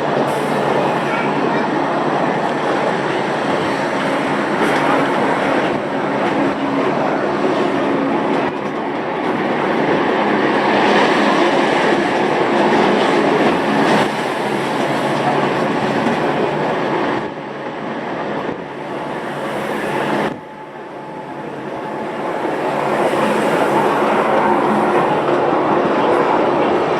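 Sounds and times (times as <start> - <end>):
cogwheel train rumble and clatter: 0.0 - 17.4.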